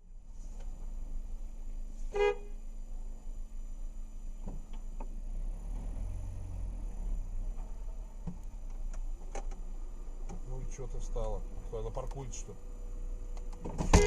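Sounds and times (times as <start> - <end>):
low vehicle rumble: 0.0 - 14.0
car horn toot: 2.1 - 2.6.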